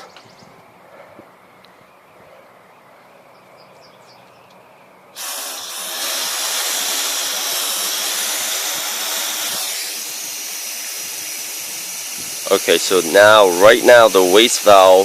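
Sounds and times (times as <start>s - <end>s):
water jetting with rushing hiss: 5.2s - 15.0s.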